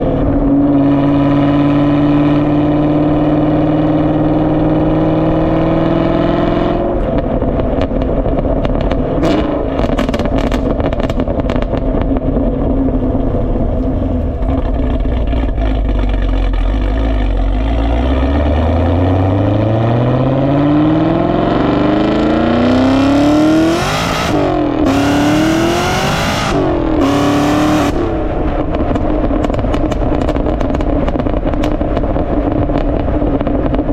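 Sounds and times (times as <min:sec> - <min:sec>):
car engine revving through exhaust: 0:00.0 - 0:33.9.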